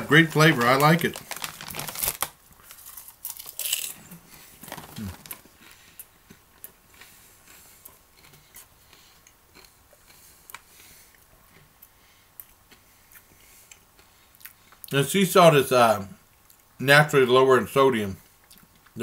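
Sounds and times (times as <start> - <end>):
plastic snack bag crinkling: 0.0 - 5.8
chewing popcorn: 0.2 - 15.0.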